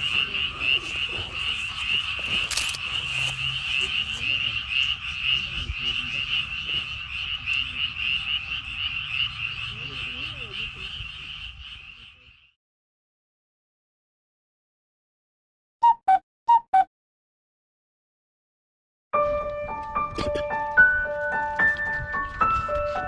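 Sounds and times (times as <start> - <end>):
chorus of frogs calling: 0.0 - 12.6.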